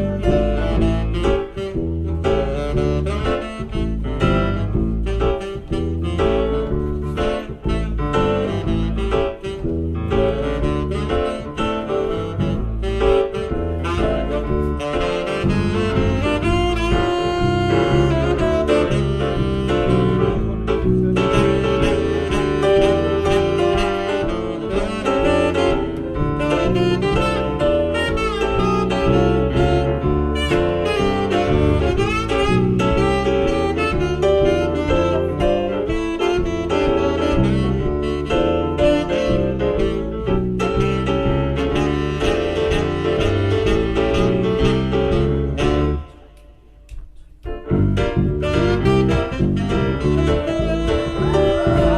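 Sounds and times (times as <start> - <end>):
jazz band with saxophone: 0.0 - 51.9
walking bass line: 0.0 - 51.9.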